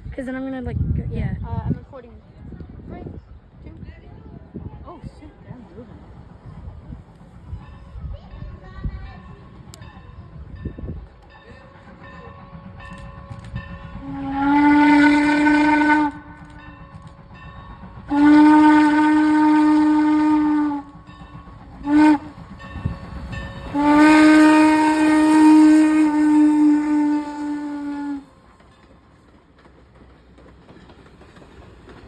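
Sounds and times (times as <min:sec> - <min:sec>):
low rumble of train: 0:00.0 - 0:32.0
steam locomotive whistle blasts: 0:12.7 - 0:16.8, 0:18.0 - 0:21.1, 0:21.8 - 0:28.4.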